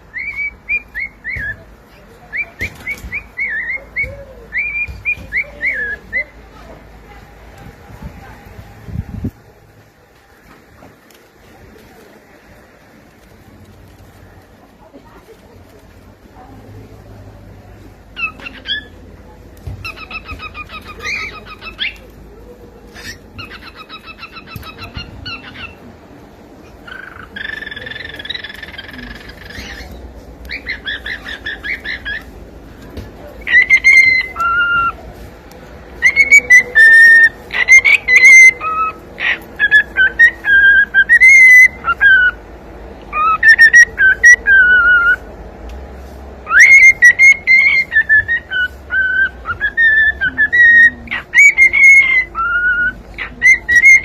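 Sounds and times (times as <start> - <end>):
cockatiel buzzy chatter: 18.0 - 45.4, 46.4 - 54.0
cockatiel whistling: 26.9 - 32.3, 33.4 - 35.0, 36.0 - 42.4, 43.1 - 45.2, 46.4 - 54.0.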